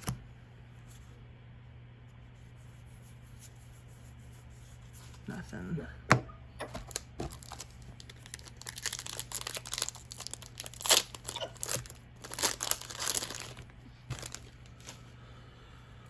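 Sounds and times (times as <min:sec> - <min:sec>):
foil wrapper tearing and crinkling: 0:06.8 - 0:15.0.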